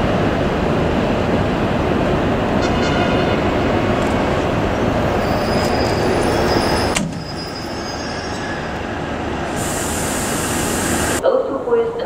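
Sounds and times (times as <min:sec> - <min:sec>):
train rumbling on rails: 0:00.0 - 0:11.6
high wheel squeal: 0:04.8 - 0:09.1.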